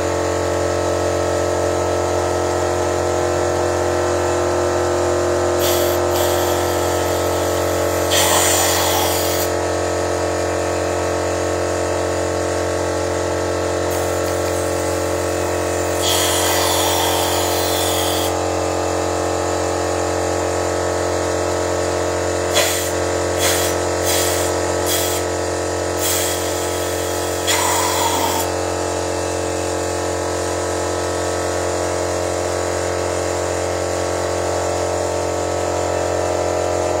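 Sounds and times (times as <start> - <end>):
short air hisses: 5.6 - 9.5, 15.8 - 18.4, 22.5 - 25.3, 26.0 - 28.5.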